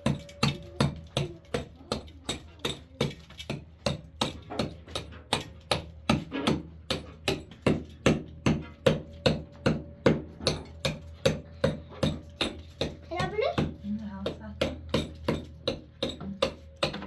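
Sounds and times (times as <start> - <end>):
hatchet chipping into wall: 0.0 - 17.0.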